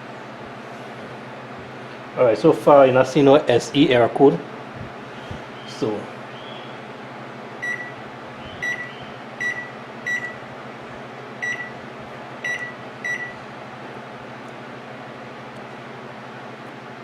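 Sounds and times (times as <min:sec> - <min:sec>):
low steady hum: 0:00.0 - 0:17.0
microwave keypad beeps: 0:07.6 - 0:08.0, 0:08.6 - 0:10.4, 0:11.4 - 0:11.8, 0:12.4 - 0:13.4.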